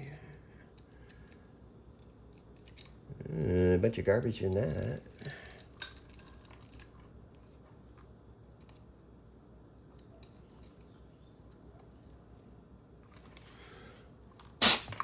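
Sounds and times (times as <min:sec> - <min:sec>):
small parts clicking and tapping: 0:00.7 - 0:03.0, 0:04.2 - 0:07.0.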